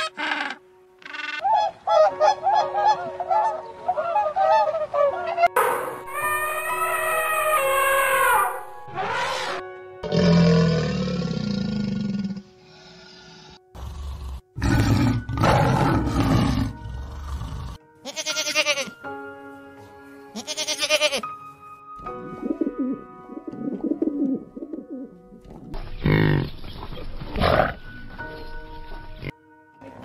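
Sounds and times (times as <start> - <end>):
tiger roaring: 10.0 - 12.4, 13.8 - 17.8
music with long held notes: 15.0 - 25.7.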